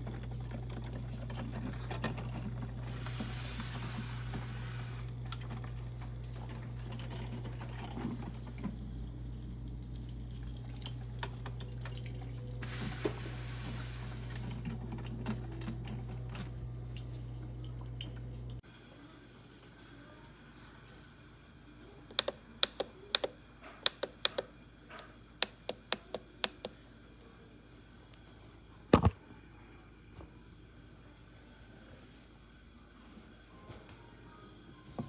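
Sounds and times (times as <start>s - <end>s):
coffee maker hum: 0.0s - 33.7s
water trickling and dripping: 9.4s - 12.6s, 16.9s - 18.6s.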